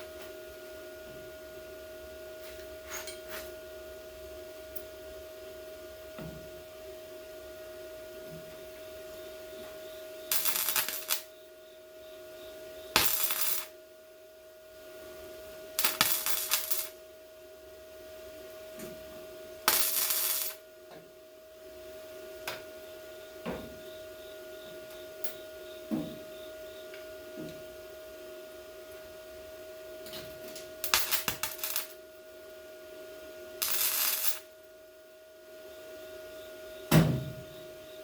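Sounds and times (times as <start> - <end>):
steady hum: 0.0 - 38.0
welder bursts: 10.3 - 11.2, 13.0 - 13.7, 15.8 - 16.9, 19.7 - 20.6, 30.9 - 31.9, 33.6 - 34.5.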